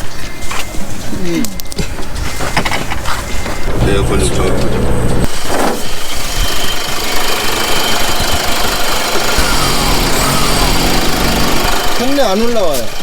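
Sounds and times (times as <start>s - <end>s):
low hum: 3.7s - 5.8s
loud steady rushing noise: 3.7s - 12.5s
vehicle engine idling: 3.7s - 13.0s.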